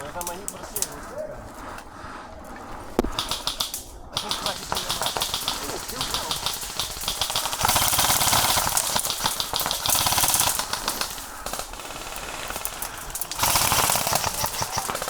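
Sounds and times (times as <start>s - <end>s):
airsoft rifle firing full auto: 3.2s - 15.0s.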